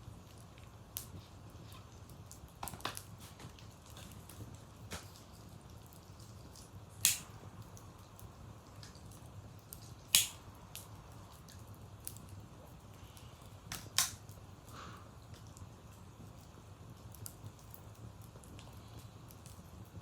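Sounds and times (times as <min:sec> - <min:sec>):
wood fire crackling: 0:00.0 - 0:20.0
sharp fire pops: 0:02.0 - 0:12.4, 0:13.5 - 0:14.5.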